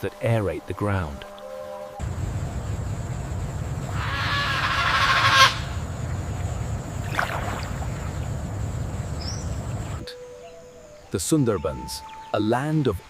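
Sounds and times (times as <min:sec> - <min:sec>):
bird calling: 0:01.5 - 0:06.7
steady low rumble: 0:02.0 - 0:10.0.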